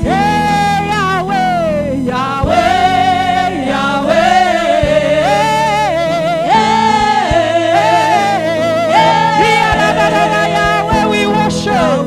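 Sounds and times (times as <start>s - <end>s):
gospel singing with keyboard: 0.0s - 12.0s
soft low thumps: 2.4s - 11.2s.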